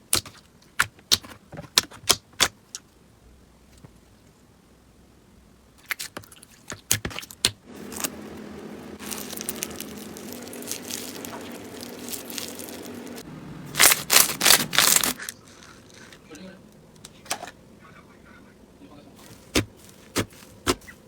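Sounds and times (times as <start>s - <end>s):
slime squishing: 5.8s - 8.4s, 9.0s - 16.3s, 19.2s - 21.0s
slime clicking and crackling: 9.0s - 13.2s, 13.8s - 16.1s.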